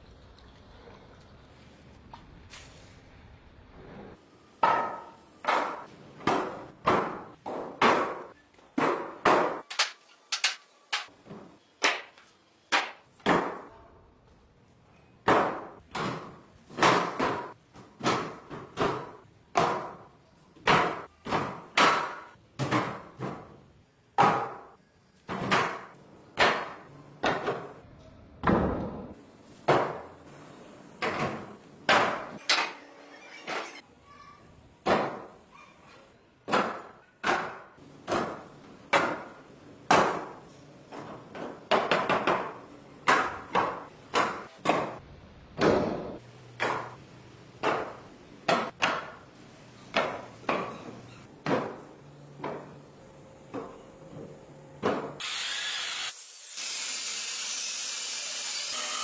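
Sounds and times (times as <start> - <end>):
sharp knocks of hard objects: 4.6 - 11.1, 11.8 - 13.7.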